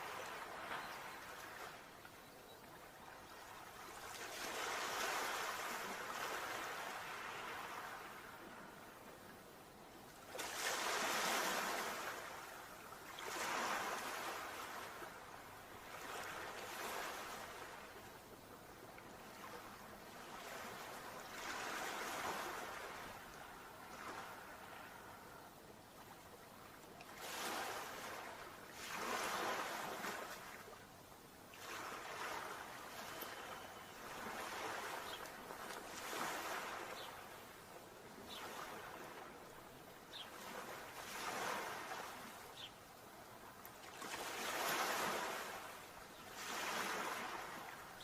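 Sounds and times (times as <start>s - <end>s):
sea waves breaking: 3.4s - 9.0s, 10.2s - 18.0s, 19.1s - 25.4s, 26.6s - 30.8s, 31.6s - 37.6s, 40.1s - 42.5s, 43.8s - 48.0s.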